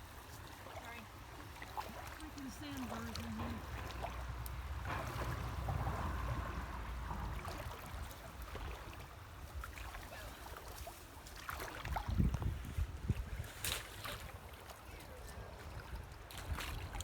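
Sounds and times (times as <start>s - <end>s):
creek water swishing: 0.0s - 17.0s
small water splashes: 0.0s - 17.0s
low steady rumble: 2.5s - 10.0s.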